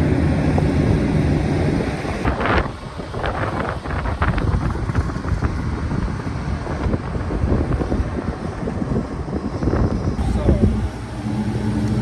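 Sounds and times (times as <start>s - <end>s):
combine harvester rumbling: 0.0s - 12.0s
wind noise on microphone: 0.0s - 12.0s.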